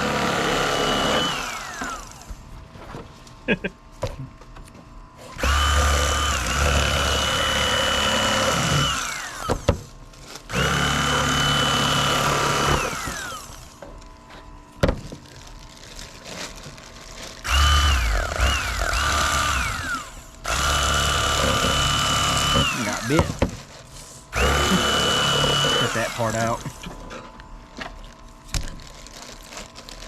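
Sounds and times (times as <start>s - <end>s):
electric knife motor whine: 0.0s - 2.3s, 5.3s - 9.8s, 10.5s - 13.8s, 17.4s - 23.4s, 24.3s - 27.0s.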